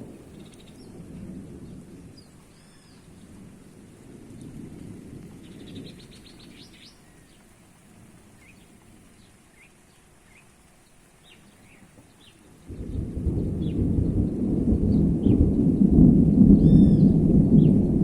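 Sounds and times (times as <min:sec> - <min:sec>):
thunder rumbling: 0:00.0 - 0:06.8, 0:12.7 - 0:18.0
bird chirping: 0:05.4 - 0:07.5, 0:08.4 - 0:17.8
loud thunderclap: 0:12.7 - 0:18.0.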